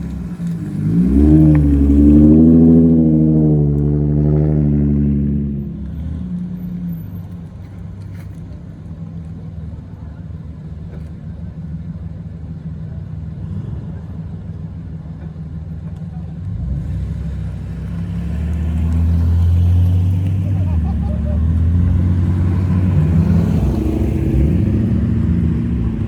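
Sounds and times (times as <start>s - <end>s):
car exhaust passing: 0.0s - 5.9s, 16.6s - 26.0s.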